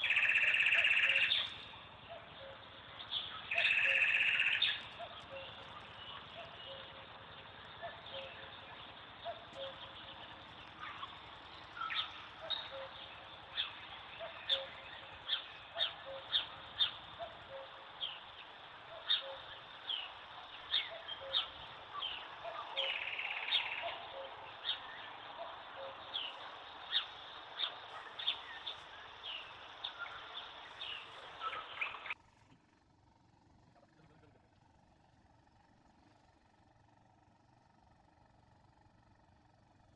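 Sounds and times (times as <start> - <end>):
birds chirping: 0.0 - 32.2
buzzy bird call: 0.0 - 32.2.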